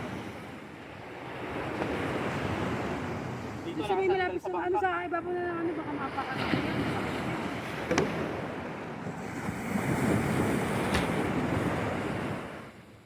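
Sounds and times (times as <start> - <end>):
surf rushing: 0.0 - 12.8
wind on microphone: 6.2 - 13.0.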